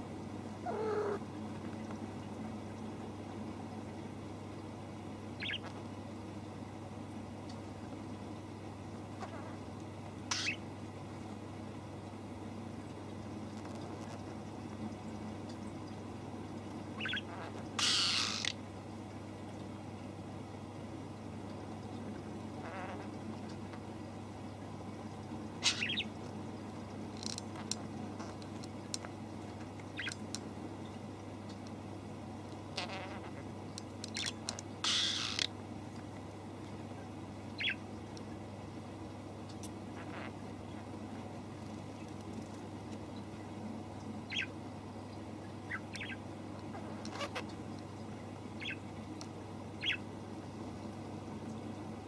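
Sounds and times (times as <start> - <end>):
steady low hum: 0.0 - 52.0
small bird chirping: 0.6 - 1.2, 5.4 - 5.8, 10.3 - 10.6, 17.0 - 18.5, 25.6 - 26.1, 30.0 - 30.2, 34.1 - 35.5, 37.6 - 37.8, 44.3 - 44.6, 45.7 - 47.5, 48.6 - 48.9, 49.8 - 50.0
young animal squeaky calls: 0.6 - 1.2, 10.3 - 10.6, 17.0 - 18.5, 25.6 - 26.1, 34.2 - 35.5, 48.6 - 48.8
small ticks: 25.9 - 31.8, 32.5 - 36.8, 39.4 - 40.6, 41.5 - 43.3, 46.0 - 50.0.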